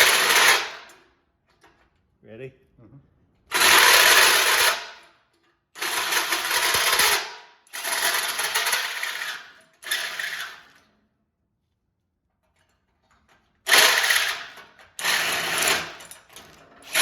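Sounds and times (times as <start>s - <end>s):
drill hole saw cutting steel: 0.0s - 0.8s, 3.5s - 5.0s, 5.8s - 10.7s, 13.7s - 16.1s.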